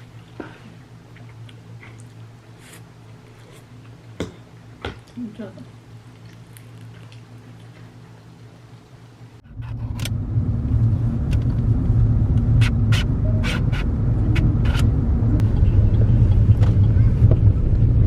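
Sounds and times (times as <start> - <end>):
motor vehicle rumbling: 9.4 - 18.0.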